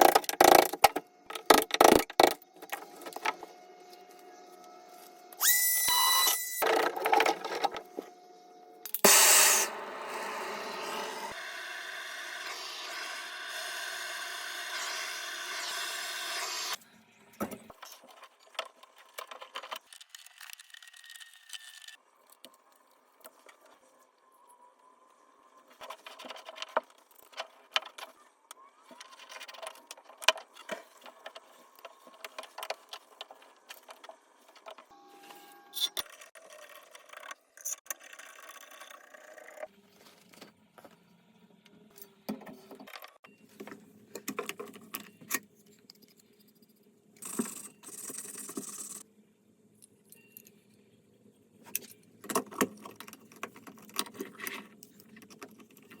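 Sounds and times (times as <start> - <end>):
metallic clinks and scrapes of tools: 49.8 - 50.8.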